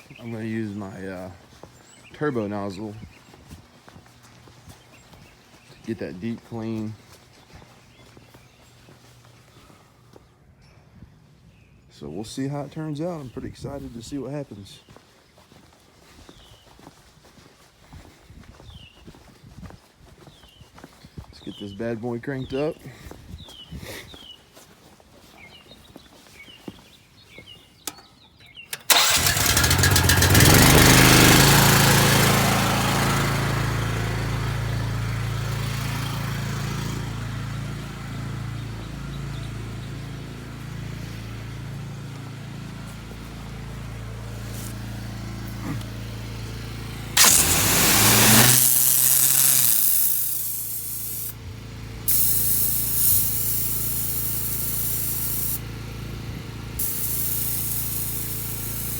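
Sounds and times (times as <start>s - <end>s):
pressure washer engine running: 28.8s - 58.9s
high-pressure spray hiss: 47.2s - 51.4s, 52.1s - 55.6s, 56.8s - 58.9s.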